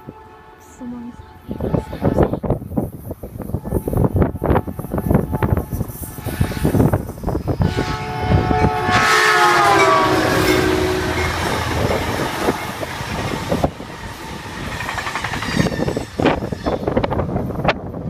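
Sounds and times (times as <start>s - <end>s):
train horn: 0.0s - 2.5s, 3.5s - 12.8s
train cars rumbling past: 0.0s - 18.0s
wheels clacking over rail joints: 9.7s - 17.3s.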